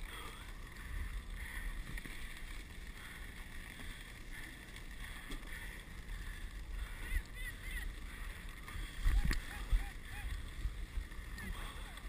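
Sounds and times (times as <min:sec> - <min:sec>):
wind rumble on microphone: 0:04.0 - 0:12.0.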